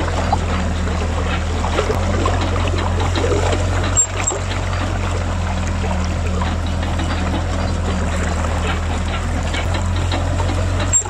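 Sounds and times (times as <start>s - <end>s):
river water over gravel: 0.0s - 11.0s
steady low hum: 0.0s - 11.0s.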